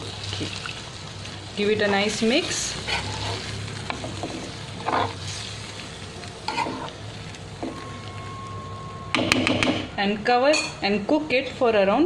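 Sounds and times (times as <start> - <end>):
oil sizzling in a pan: 0.0 - 10.2
spoon scraping a pan: 1.8 - 5.6, 6.4 - 7.0.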